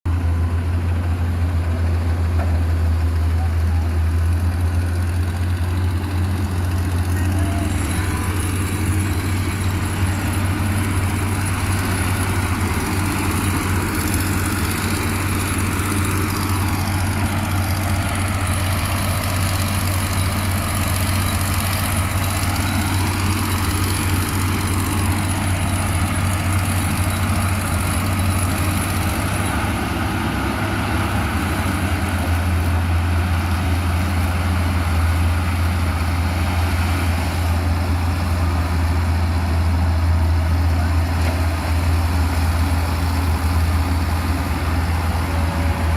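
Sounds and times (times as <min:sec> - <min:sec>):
construction machine engine running: 0:00.1 - 0:45.9.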